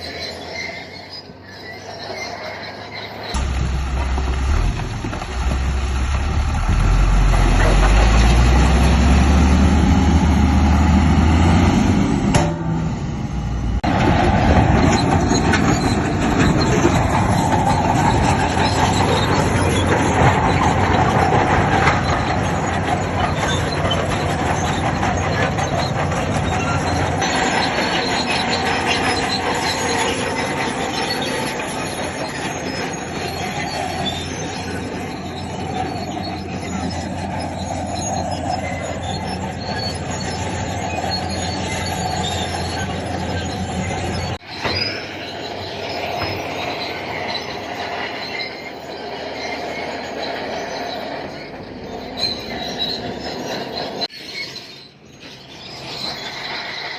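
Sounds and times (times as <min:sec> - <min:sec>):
bulldozer tracks squealing and clanking: 0:00.0 - 0:56.9
diesel engine running: 0:03.4 - 0:44.4.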